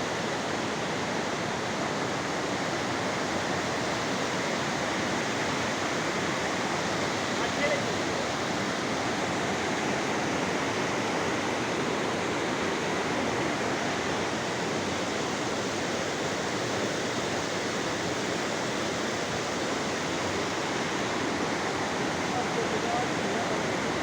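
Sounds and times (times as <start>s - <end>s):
river water rushing over rocks: 0.0s - 24.0s.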